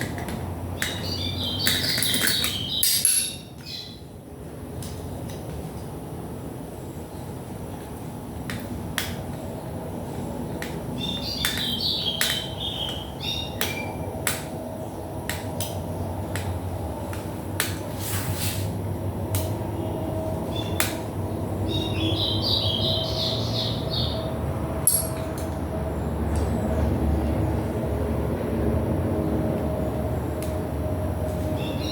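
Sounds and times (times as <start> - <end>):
bird chirping: 0.8 - 4.0, 11.0 - 14.0, 19.8 - 20.9, 21.6 - 24.4, 31.5 - 31.9
clicks of tools and small parts: 24.8 - 25.6.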